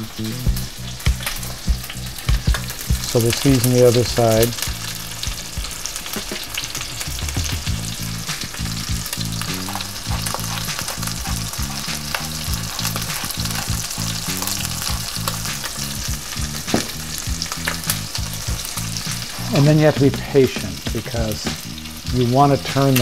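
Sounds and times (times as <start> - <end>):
low pulsing hum: 0.0 - 3.2, 4.6 - 5.8, 7.2 - 19.5
chicken sizzling in a skillet: 0.0 - 23.0.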